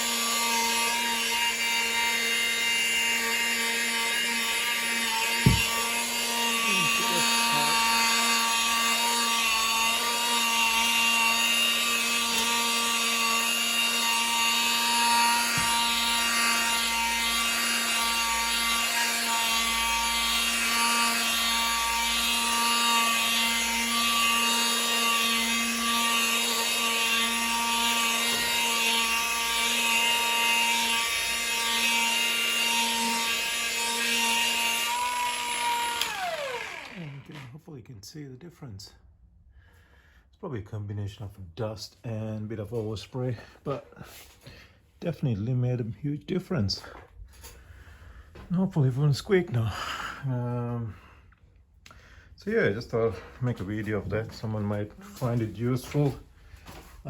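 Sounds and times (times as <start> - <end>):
power polisher motor whine: 0.0 - 37.4
sharp knock: 5.5 - 5.8.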